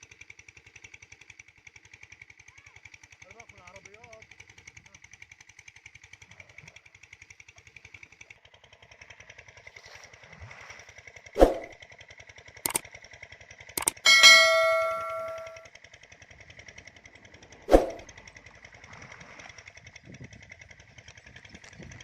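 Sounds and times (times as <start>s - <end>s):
small engine chugging: 0.0s - 22.0s
loud metal clang: 13.8s - 15.6s
sharp knocks: 13.8s - 15.6s.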